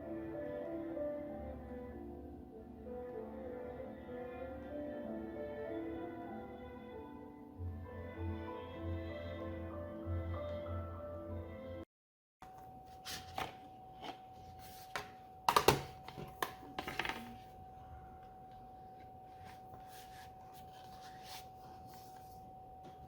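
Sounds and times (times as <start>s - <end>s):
faint steady hum: 12.4s - 23.0s.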